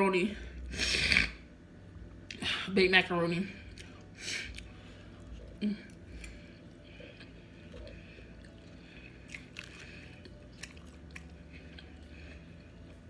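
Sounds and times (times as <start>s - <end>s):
person chewing food: 3.6s - 13.0s.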